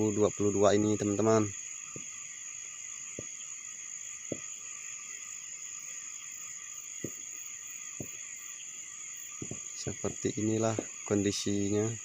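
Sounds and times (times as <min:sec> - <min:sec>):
crickets chirping: 0:00.0 - 0:12.0
distant fireworks thuds: 0:01.9 - 0:02.2, 0:03.1 - 0:03.4, 0:04.2 - 0:04.6, 0:06.9 - 0:08.4, 0:09.3 - 0:11.2.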